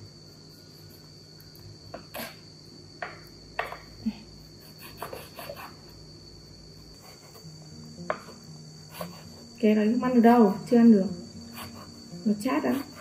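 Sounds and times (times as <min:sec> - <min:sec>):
knife cutting on wooden board: 0:04.8 - 0:05.7.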